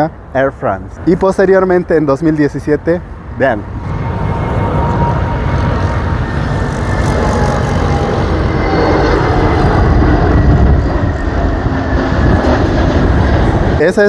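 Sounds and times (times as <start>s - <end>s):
jet airliner engine rumble: 0.0s - 14.0s
faint whining tones falling in pitch: 3.6s - 11.6s.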